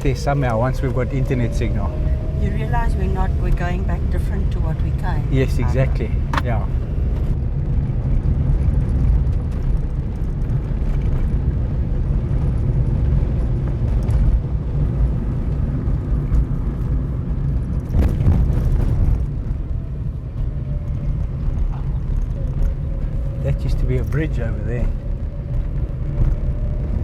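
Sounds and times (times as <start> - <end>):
vehicle driving on gravel: 0.0 - 27.0.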